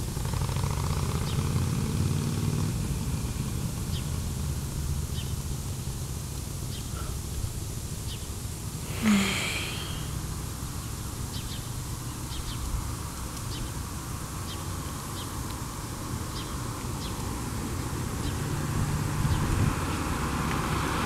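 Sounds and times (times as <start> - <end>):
birds chirping: 8.0 - 12.7.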